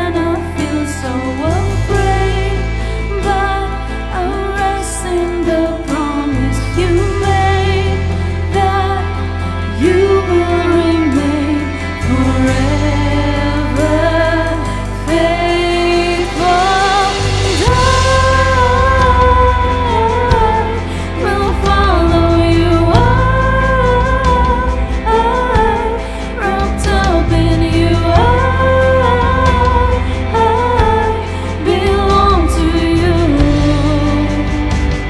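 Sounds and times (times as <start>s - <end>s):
people singing worship song: 0.0s - 35.0s
band playing: 12.0s - 35.0s.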